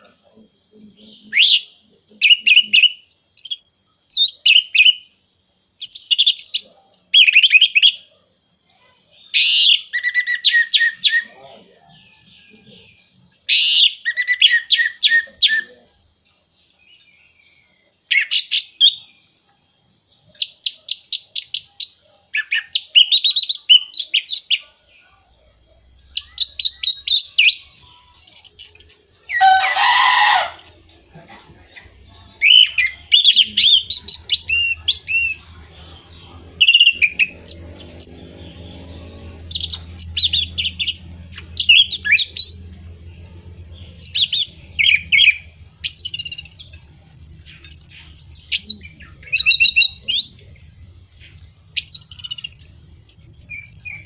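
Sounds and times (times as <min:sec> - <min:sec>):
thrush singing whistled notes: 0:00.0 - 0:08.2, 0:09.2 - 0:12.8, 0:25.9 - 0:31.0, 0:31.7 - 0:54.0.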